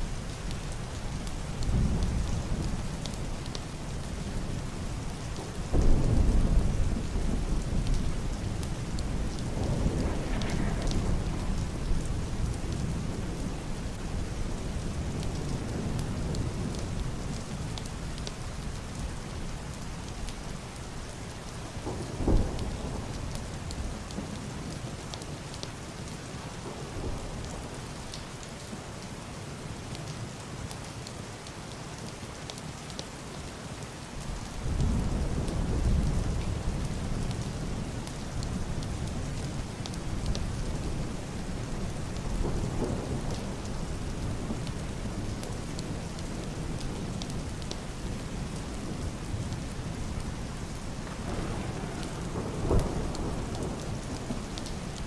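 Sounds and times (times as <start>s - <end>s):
heavy rain on roof and glass: 0.0s - 55.0s
muffled rolling thunder: 1.2s - 18.3s, 21.7s - 24.8s, 34.6s - 55.0s
sharp thunderclap: 9.3s - 12.1s, 51.0s - 55.0s.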